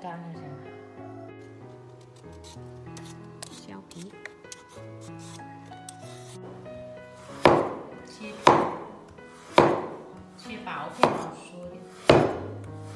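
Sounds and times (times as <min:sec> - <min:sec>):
background music: 0:00.0 - 0:12.9
knife chopping on cutting board: 0:07.3 - 0:10.2, 0:10.9 - 0:12.9.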